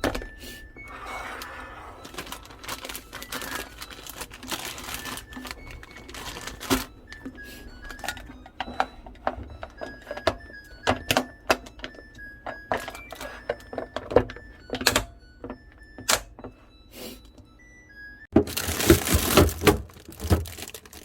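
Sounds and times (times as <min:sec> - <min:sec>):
quiet background music: 0:00.0 - 0:21.0
rustling: 0:00.9 - 0:06.9.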